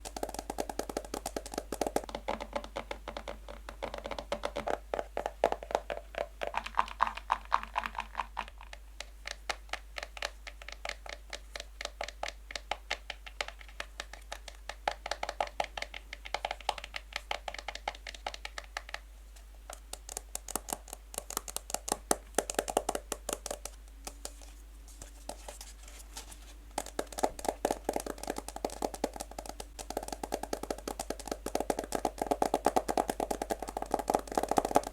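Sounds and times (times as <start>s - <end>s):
fingernails tapping on a box: 26.8s - 34.9s.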